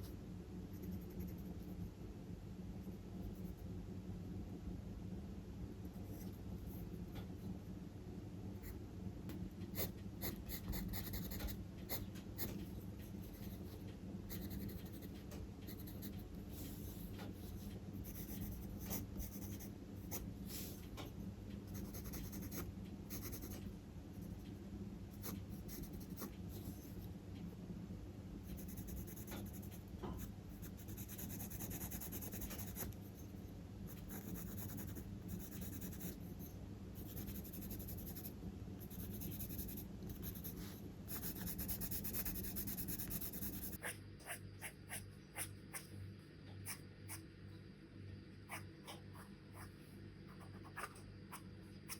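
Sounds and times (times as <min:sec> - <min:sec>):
steady low hum: 0:00.0 - 0:51.9
pencil scratching on paper: 0:00.7 - 0:01.8, 0:21.8 - 0:23.6, 0:28.5 - 0:33.0, 0:33.9 - 0:36.2, 0:37.0 - 0:38.3, 0:38.9 - 0:45.9.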